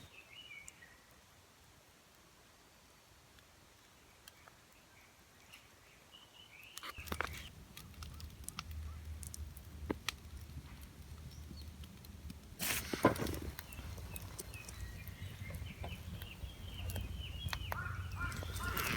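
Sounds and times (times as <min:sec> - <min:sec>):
sharp clicks and snaps: 0:06.8 - 0:18.9
steady low rumble: 0:07.5 - 0:12.6, 0:13.2 - 0:18.9
bird calling faintly: 0:10.8 - 0:18.9.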